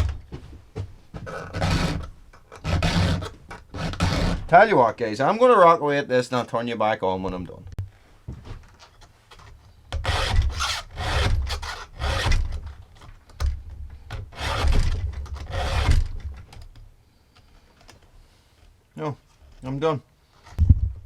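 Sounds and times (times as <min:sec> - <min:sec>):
file rasping on chainsaw chain: 0:01.3 - 0:04.6, 0:10.0 - 0:12.6, 0:14.3 - 0:16.1.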